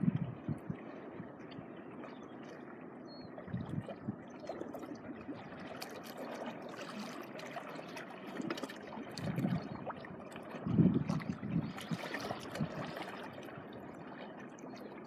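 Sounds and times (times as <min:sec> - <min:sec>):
water trickling among rocks: 0:04.6 - 0:15.0
small waves washing ashore: 0:04.8 - 0:14.4.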